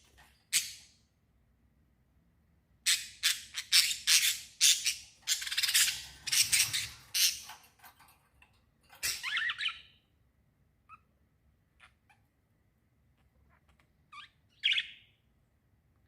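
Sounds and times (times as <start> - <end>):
small birds chirping: 2.9 - 7.9, 8.9 - 10.1, 10.8 - 12.4, 13.1 - 15.4.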